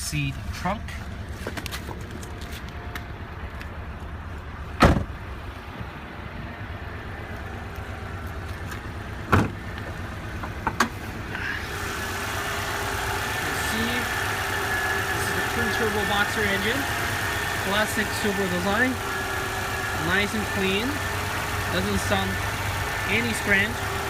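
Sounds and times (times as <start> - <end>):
car engine idling: 0.0 - 24.0
loud thump: 4.8 - 5.2, 9.3 - 9.6.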